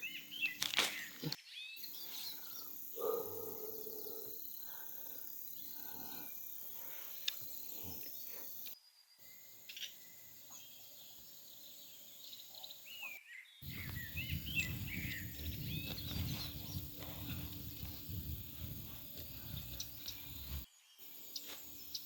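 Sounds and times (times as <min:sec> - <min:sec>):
birds chirping: 0:00.0 - 0:22.0
insect drone: 0:01.8 - 0:10.4, 0:13.6 - 0:22.0
low rumbling noise: 0:13.6 - 0:20.6.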